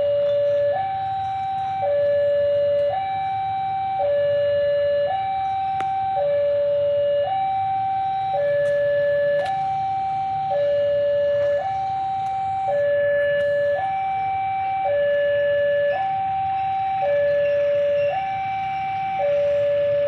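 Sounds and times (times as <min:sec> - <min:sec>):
level crossing alarm: 0:00.0 - 0:20.0.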